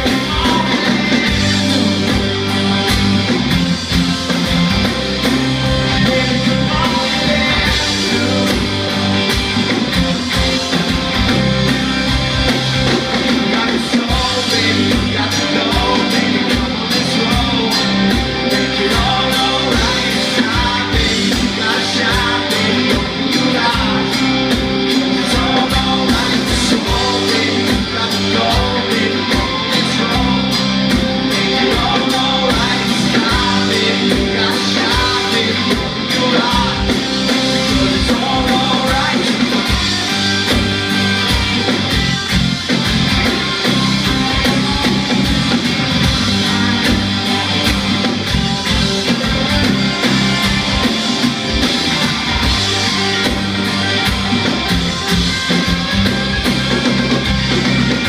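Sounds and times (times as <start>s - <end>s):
guitars: 0.0s - 58.0s
live rock band playing: 0.0s - 58.0s
steady drum beat: 0.0s - 58.0s.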